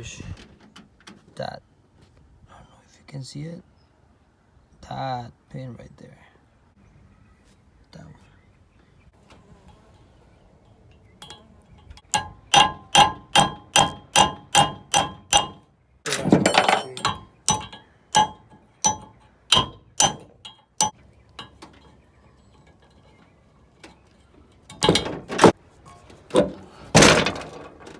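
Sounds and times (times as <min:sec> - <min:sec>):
metal clatter: 0:11.0 - 0:27.9
hammer blows on metal: 0:11.2 - 0:15.6, 0:16.3 - 0:21.0.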